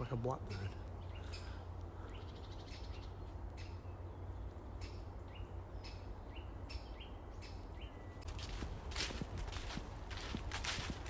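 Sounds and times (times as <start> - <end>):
bird chip calls: 0.0 - 8.6.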